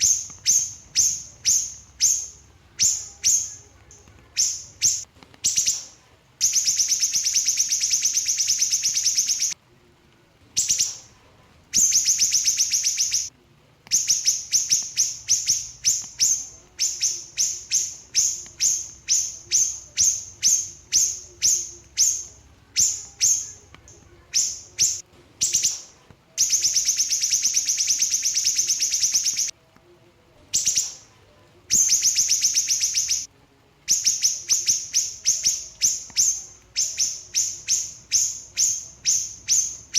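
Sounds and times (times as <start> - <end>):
bird singing high rattling trills: 0.0 - 3.7, 4.4 - 9.6, 11.8 - 13.3, 24.3 - 29.5, 31.7 - 33.3, 33.9 - 39.9.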